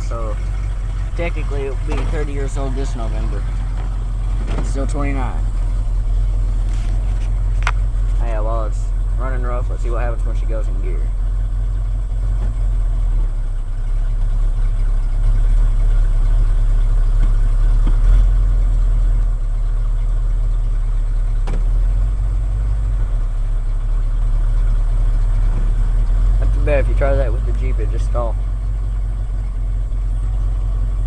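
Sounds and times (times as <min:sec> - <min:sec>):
rough engine idling: 0:00.0 - 0:31.0.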